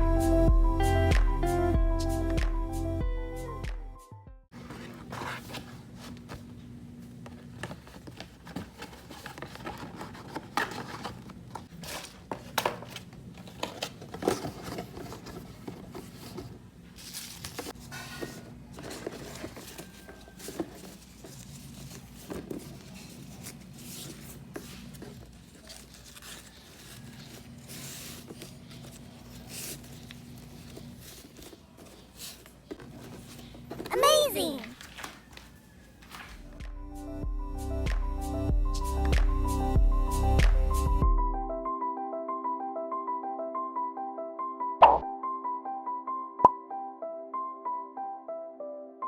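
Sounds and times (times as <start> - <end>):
rustling: 13.4 - 33.9.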